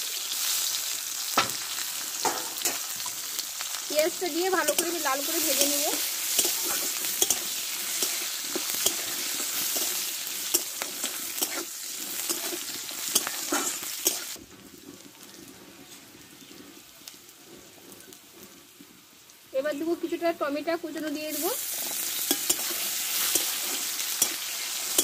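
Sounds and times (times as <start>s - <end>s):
onions sizzling in hot oil: 0.0s - 25.0s
metal spatula scraping pan: 4.4s - 14.4s, 21.6s - 25.0s.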